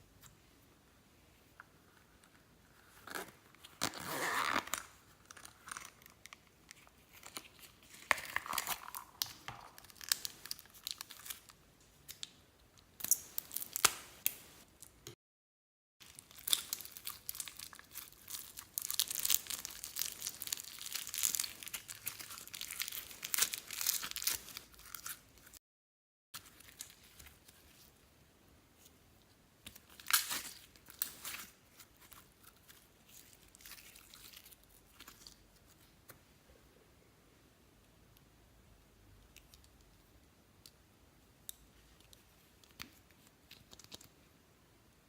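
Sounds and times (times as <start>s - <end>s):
sticky slime crackles and pops: 16.0s - 25.2s.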